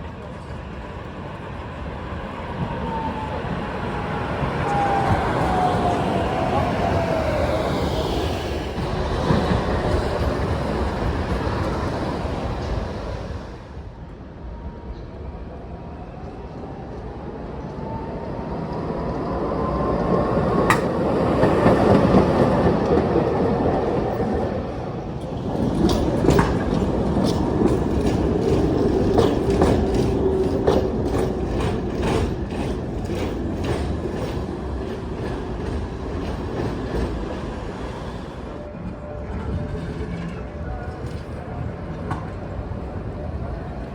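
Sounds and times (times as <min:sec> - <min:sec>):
tram motor whine: 0:00.0 - 0:14.1, 0:16.2 - 0:43.9
wheels clacking over track joints: 0:25.2 - 0:38.2.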